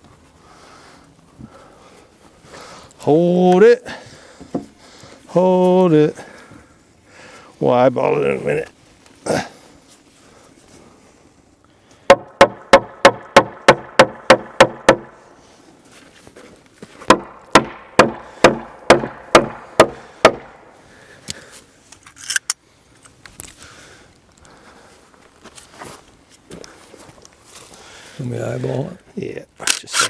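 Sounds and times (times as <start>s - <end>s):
hammer driving nails into wood: 12.1s - 15.2s, 17.1s - 20.6s.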